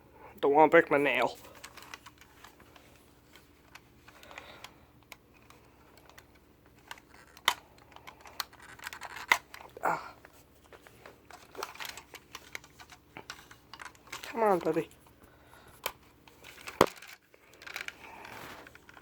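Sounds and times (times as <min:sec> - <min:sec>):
fingers clicking and scratching plastic: 0:01.5 - 0:09.9, 0:10.8 - 0:15.2.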